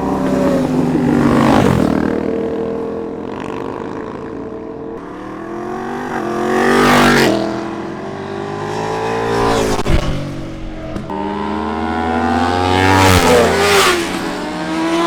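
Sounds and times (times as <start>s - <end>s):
motorbike engine accelerating: 5.0s - 15.0s.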